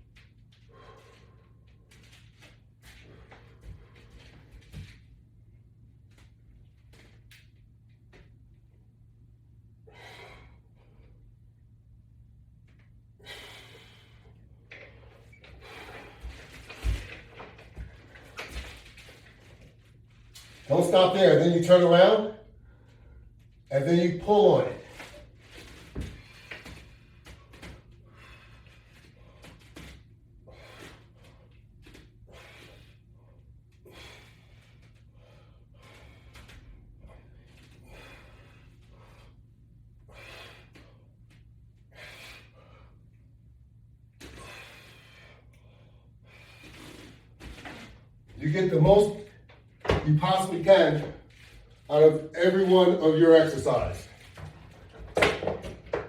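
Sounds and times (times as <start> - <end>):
person breathing hard: 0.6 - 1.8, 9.8 - 11.2, 13.2 - 16.6, 26.0 - 31.6, 32.2 - 43.3, 44.2 - 47.4.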